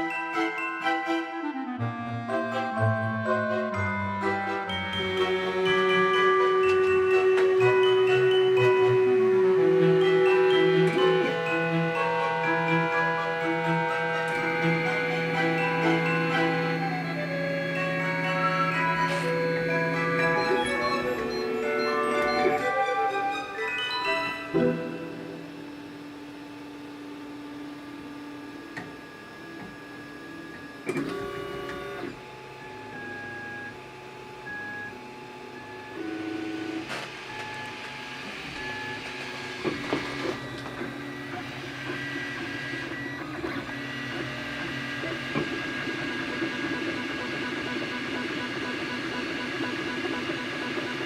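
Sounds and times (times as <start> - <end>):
stepper motors whining: 1.5 - 51.0.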